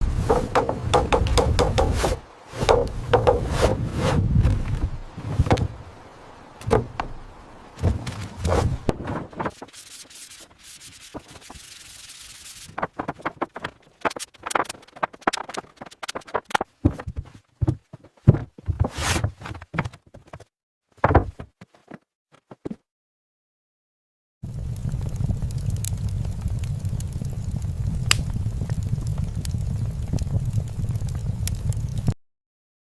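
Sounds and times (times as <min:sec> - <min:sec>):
sanding wood: 0:00.0 - 0:04.1
steady hiss: 0:00.0 - 0:13.2.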